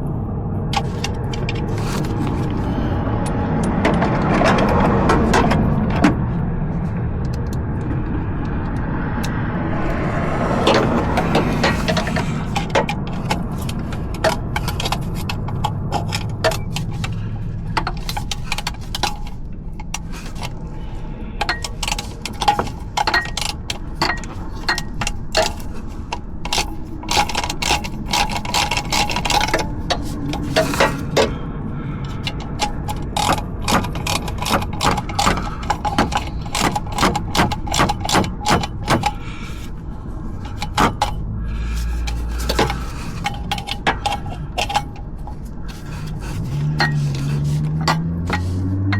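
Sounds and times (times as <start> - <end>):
hand tools clinking on metal: 21.4 - 31.3, 40.4 - 48.9.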